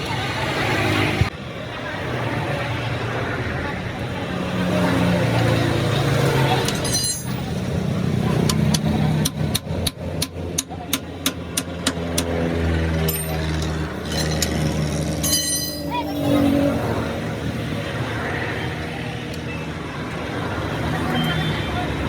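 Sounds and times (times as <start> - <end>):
metallic ringing: 6.7 - 7.8, 13.0 - 16.5
sharp metal knocks: 8.4 - 15.9.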